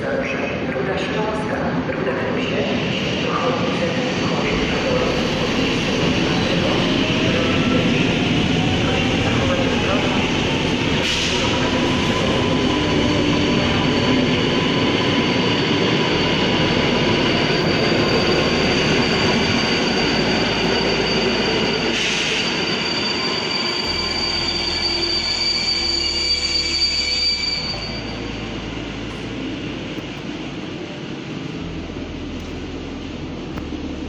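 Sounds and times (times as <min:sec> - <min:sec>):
rumble of rails: 0:00.0 - 0:34.0
train wheels squealing: 0:05.4 - 0:28.4.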